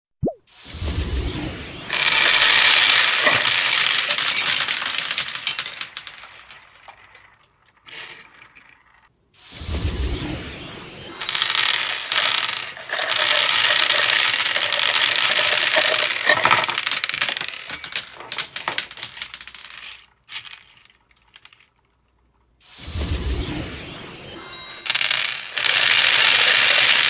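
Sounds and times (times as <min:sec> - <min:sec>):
plastic balls clattering on table: 0:01.9 - 0:09.1, 0:11.2 - 0:22.3, 0:24.8 - 0:27.0.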